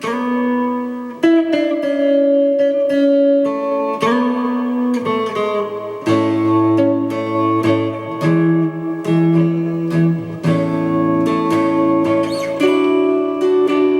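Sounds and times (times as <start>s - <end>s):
electric guitar chords: 0.0s - 13.9s.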